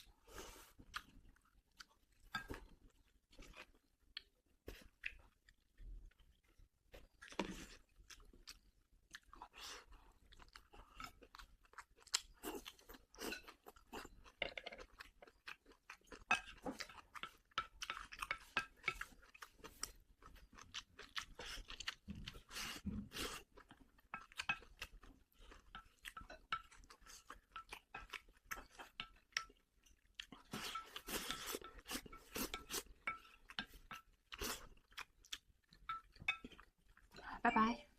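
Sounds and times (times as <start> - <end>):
person chewing food: 0.0 - 37.2.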